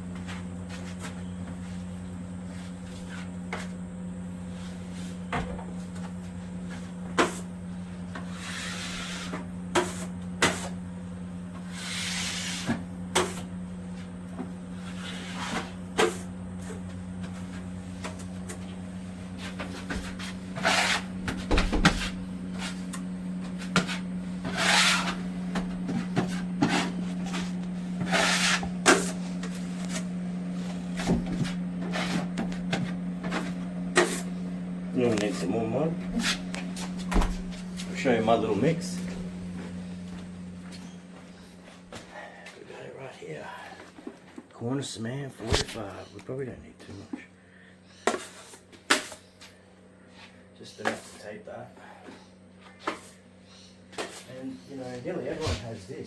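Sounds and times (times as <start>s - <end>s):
taping knife scraping: 8.2s - 10.8s, 11.6s - 13.5s, 19.6s - 21.1s, 21.9s - 25.3s, 25.9s - 30.1s
low hum: 10.8s - 42.4s.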